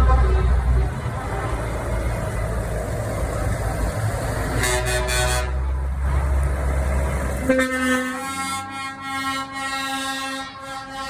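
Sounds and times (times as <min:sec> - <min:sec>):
truck engines rumbling: 0:00.0 - 0:11.0
truck air horn blast: 0:04.5 - 0:05.8, 0:07.4 - 0:11.0.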